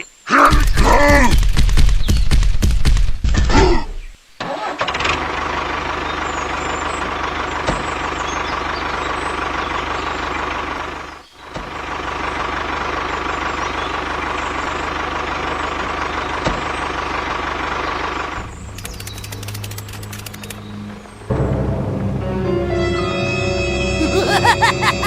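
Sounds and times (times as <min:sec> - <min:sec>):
engine running with whine: 0:04.7 - 0:24.2
faint clicks: 0:18.7 - 0:21.0.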